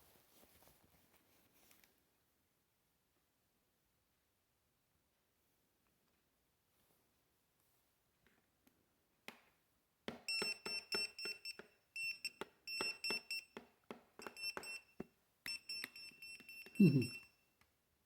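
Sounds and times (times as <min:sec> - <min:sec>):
electronic alarm beeping: 0:10.3 - 0:13.6, 0:14.2 - 0:17.3.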